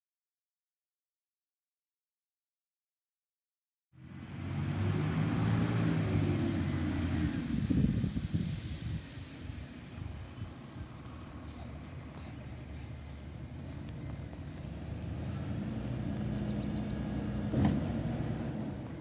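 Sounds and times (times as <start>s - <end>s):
faint high squeals: 9.0s - 13.0s.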